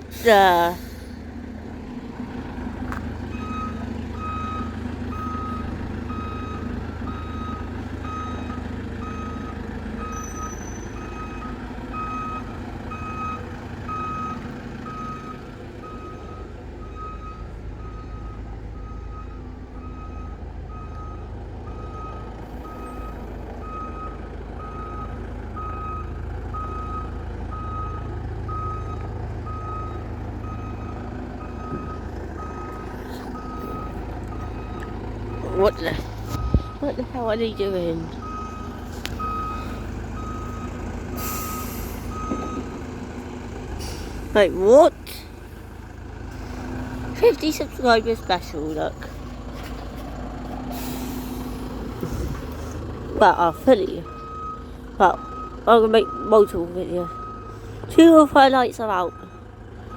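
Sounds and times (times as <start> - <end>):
diesel engine humming: 0.0 - 59.9
reversing alarm beeping: 3.3 - 45.0, 53.2 - 59.9.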